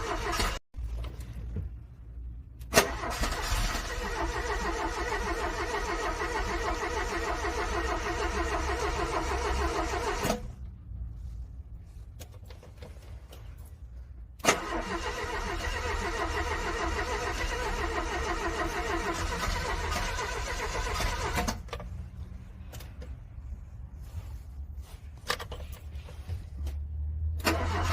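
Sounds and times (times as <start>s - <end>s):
car starter cranking: 0.0s - 0.6s, 2.6s - 10.5s, 14.4s - 21.8s, 27.4s - 27.9s.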